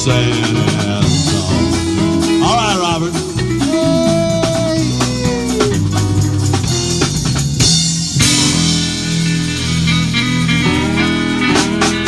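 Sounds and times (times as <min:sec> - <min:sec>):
live country band playing: 0:00.0 - 0:12.0.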